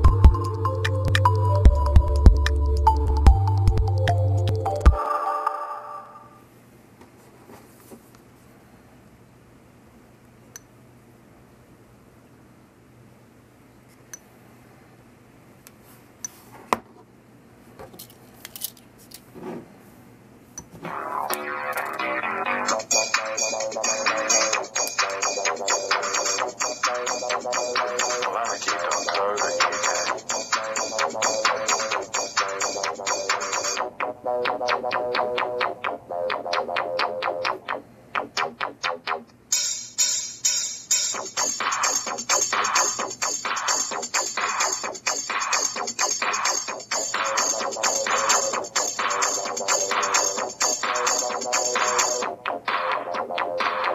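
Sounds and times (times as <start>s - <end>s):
electronic music with plucked synth: 0.0s - 6.3s, 20.8s - 39.8s, 41.0s - 53.9s
song from phone loudspeaker: 20.8s - 37.6s, 41.1s - 53.9s.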